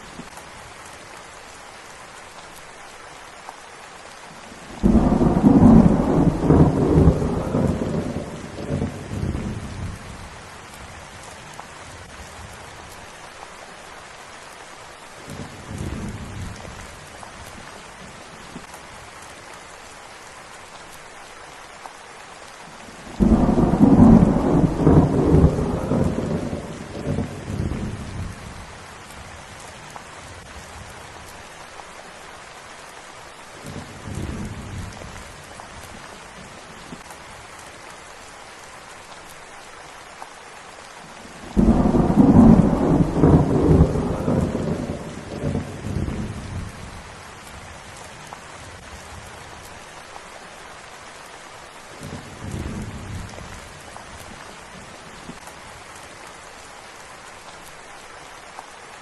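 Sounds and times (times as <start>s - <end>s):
steady rain: 0.0s - 59.0s
thunder rumbling: 4.7s - 10.2s, 23.1s - 28.6s, 41.4s - 47.0s
loud thunderclap: 4.8s - 9.5s, 23.2s - 28.0s, 41.6s - 46.6s.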